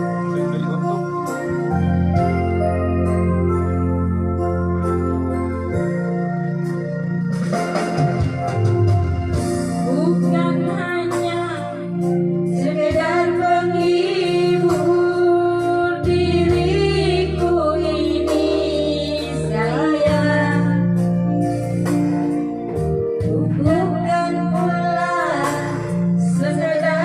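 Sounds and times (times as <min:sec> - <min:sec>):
electronic organ accompaniment: 0:00.0 - 0:27.0
woman singing with vibrato: 0:09.8 - 0:11.9, 0:12.5 - 0:20.8.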